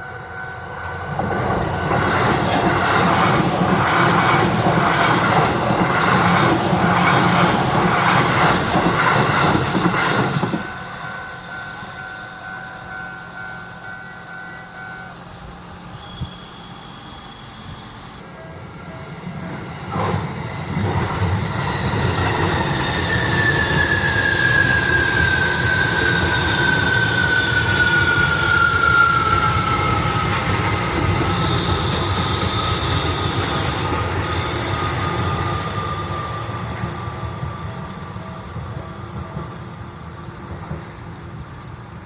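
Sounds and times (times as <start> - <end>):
train rumbling past: 0.0 - 42.0.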